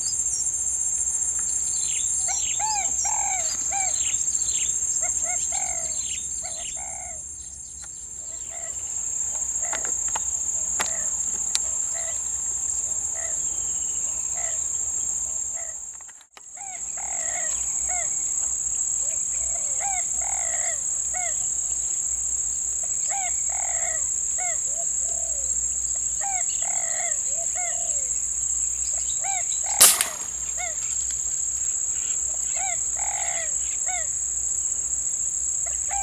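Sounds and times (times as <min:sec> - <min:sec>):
birds calling: 0:29.8 - 0:31.2
sharp crack: 0:29.8 - 0:31.2.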